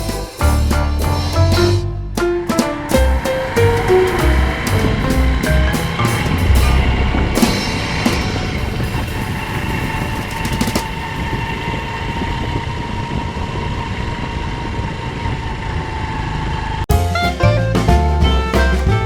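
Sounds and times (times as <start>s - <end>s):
music with drums: 0.0s - 10.9s, 16.9s - 19.0s
road noise: 0.0s - 16.9s.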